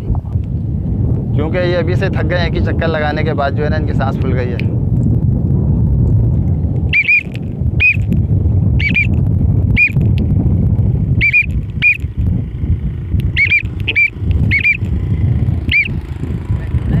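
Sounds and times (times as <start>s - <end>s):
low rumble: 0.0s - 17.0s
bird chirps: 6.9s - 8.1s, 8.8s - 9.2s, 9.8s - 10.0s, 11.2s - 12.1s, 13.3s - 14.9s, 15.7s - 16.0s.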